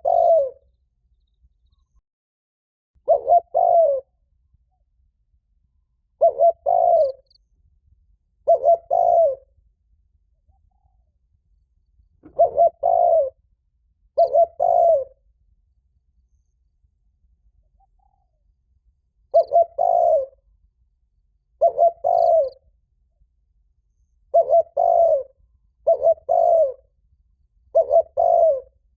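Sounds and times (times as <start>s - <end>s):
dove cooing: 0.0s - 0.6s, 3.0s - 4.2s, 6.2s - 7.3s, 8.4s - 9.6s, 12.2s - 13.4s, 14.2s - 15.3s, 19.3s - 20.4s, 21.6s - 22.6s, 24.3s - 26.8s, 27.7s - 28.8s.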